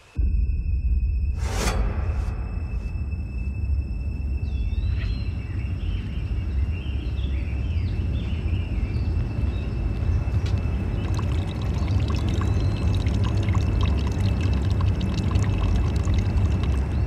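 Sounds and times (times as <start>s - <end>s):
steady low rumble: 0.1s - 17.0s
birds chirping: 4.0s - 17.0s.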